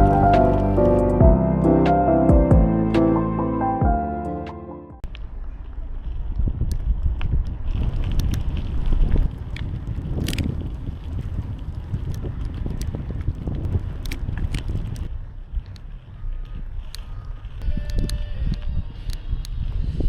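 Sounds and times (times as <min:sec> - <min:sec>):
bike clicking and rattling: 0:05.0 - 0:17.6
wind buffeting microphone: 0:05.4 - 0:20.0.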